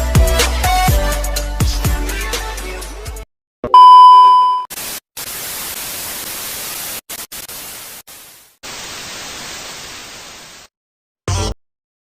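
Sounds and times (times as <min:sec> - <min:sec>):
electronic beep: 0:03.7 - 0:04.7
white-noise static: 0:04.7 - 0:10.7.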